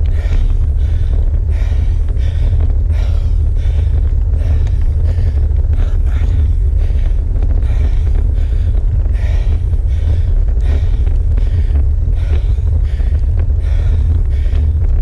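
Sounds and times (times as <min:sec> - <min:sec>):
cyclist breathing hard: 0:00.0 - 0:15.0
wind rumble on microphone: 0:00.0 - 0:15.0.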